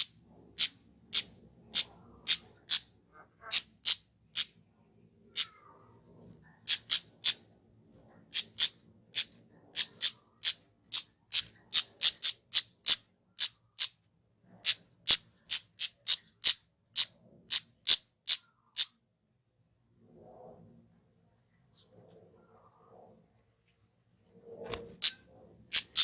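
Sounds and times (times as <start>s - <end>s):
bird high-pitched call notes: 6.7s - 7.4s, 25.0s - 26.0s.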